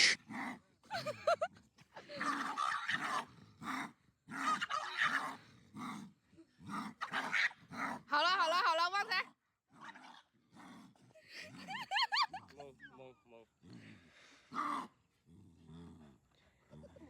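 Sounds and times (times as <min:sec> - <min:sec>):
dog and cub growling: 0:09.7 - 0:11.6, 0:13.6 - 0:17.0.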